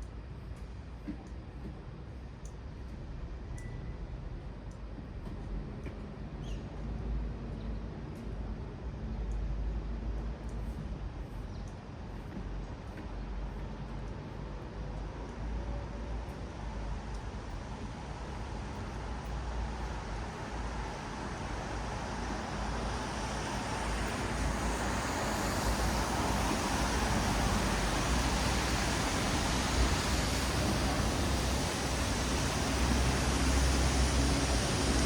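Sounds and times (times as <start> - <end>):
low rumble of engines: 0.0 - 35.0
tyres hissing on wet asphalt: 16.9 - 35.0.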